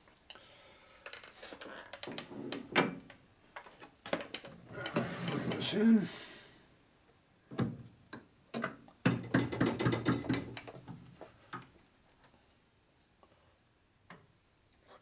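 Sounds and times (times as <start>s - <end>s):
metal clinks and knocks: 9.1s - 10.9s.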